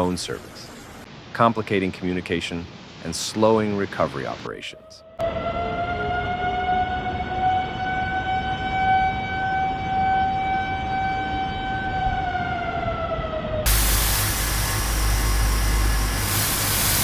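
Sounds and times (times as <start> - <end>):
steady background hiss: 0.0 - 5.0, 13.7 - 17.0
warning siren wailing: 4.6 - 16.3.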